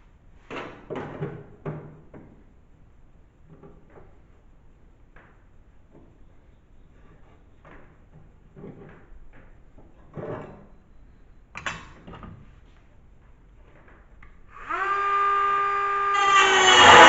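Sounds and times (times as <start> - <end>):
loud rough noise: 14.6 - 17.0
power tool motor whining: 14.6 - 17.0.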